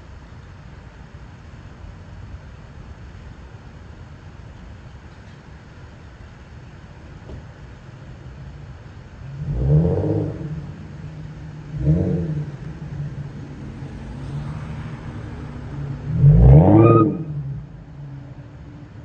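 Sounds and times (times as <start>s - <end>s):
car engine idling and revving: 6.3s - 19.0s.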